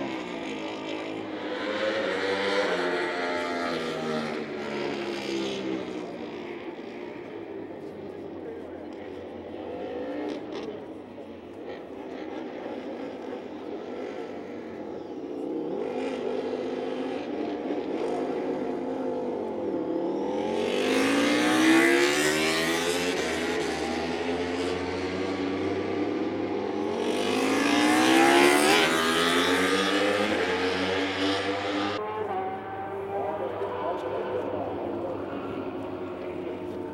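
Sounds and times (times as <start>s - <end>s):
motorcycle engines revving: 0.0s - 36.9s
motorcycle passing by: 11.6s - 36.9s.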